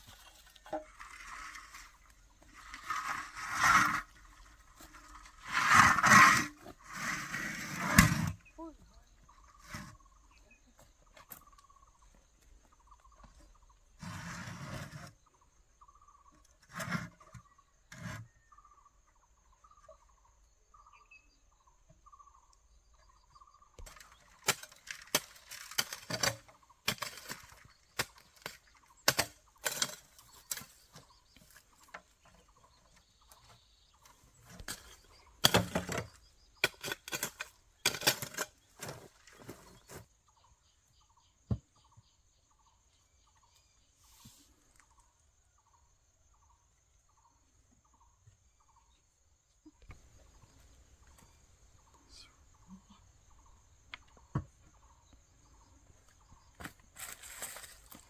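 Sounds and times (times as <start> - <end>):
rustling: 55.5 - 58.0.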